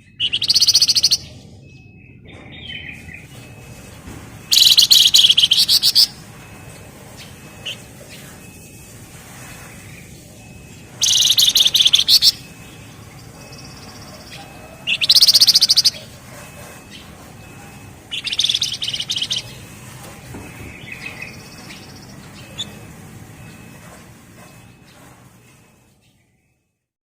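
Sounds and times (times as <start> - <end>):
songbird rapid drilling trill: 0.0 - 1.3, 4.4 - 8.3, 9.4 - 23.8.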